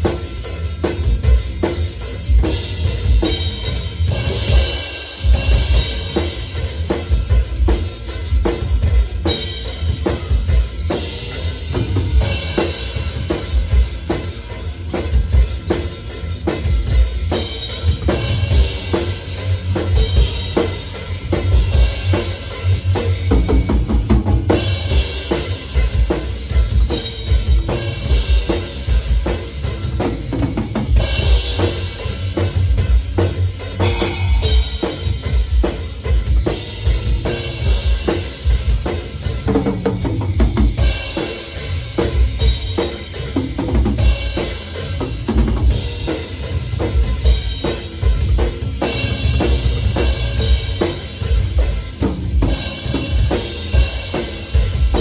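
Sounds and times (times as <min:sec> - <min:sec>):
ringing cymbals: 0:00.0 - 0:55.0
bass drum strokes: 0:15.2 - 0:55.0.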